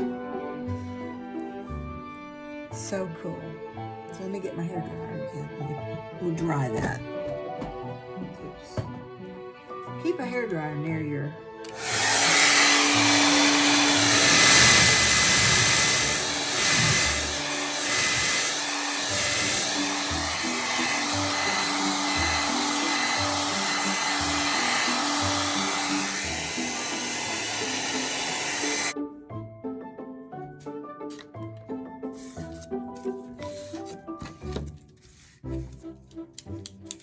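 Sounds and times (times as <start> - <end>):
hair dryer blowing: 11.6 - 29.0.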